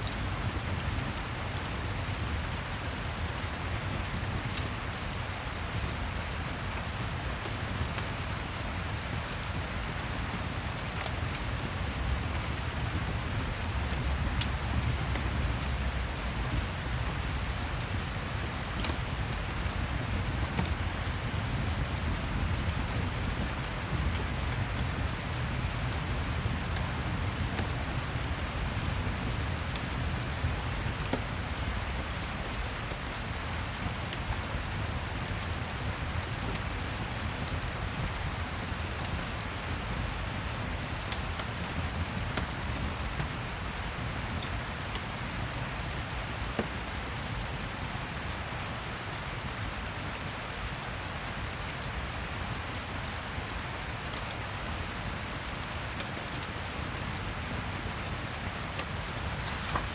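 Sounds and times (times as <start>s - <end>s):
steady rain: 0.0s - 59.9s
fireplace crackling: 9.8s - 21.6s, 57.5s - 59.9s.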